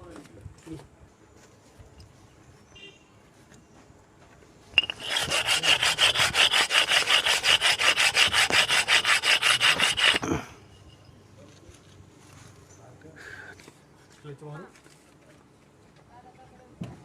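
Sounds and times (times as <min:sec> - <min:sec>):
rhythmic rasping scrape: 0:04.8 - 0:10.4.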